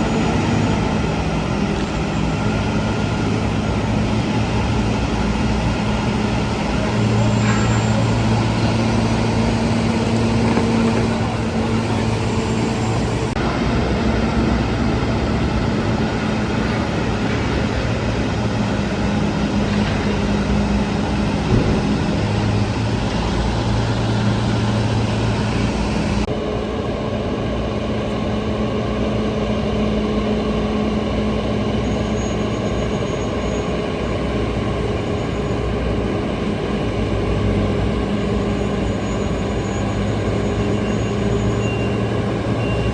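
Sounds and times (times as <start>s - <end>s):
haul truck engine droning: 0.0s - 42.9s.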